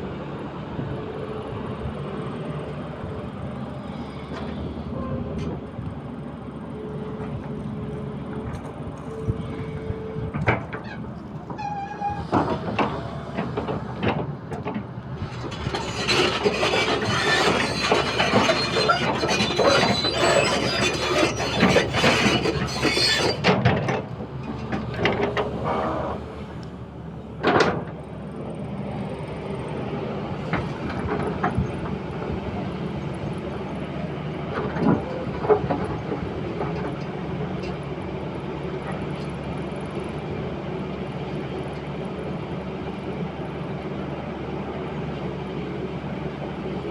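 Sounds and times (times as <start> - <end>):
excavator engine drone: 0.0 - 46.9
metal clattering and scraping: 11.6 - 24.0.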